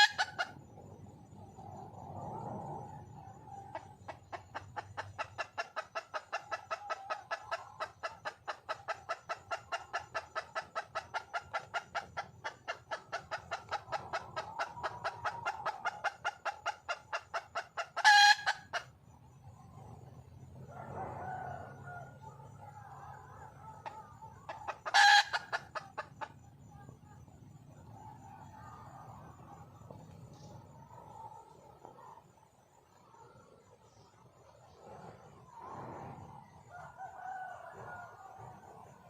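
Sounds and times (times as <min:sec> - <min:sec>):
hen clucking: 0:00.0 - 0:00.8, 0:03.3 - 0:19.7, 0:22.7 - 0:32.2.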